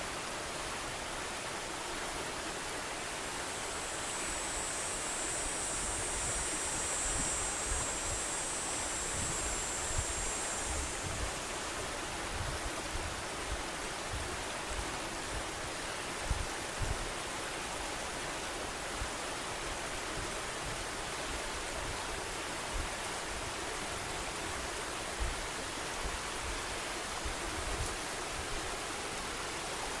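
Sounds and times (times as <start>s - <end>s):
river current rushing: 0.2s - 14.1s
high steady buzz: 3.0s - 12.0s.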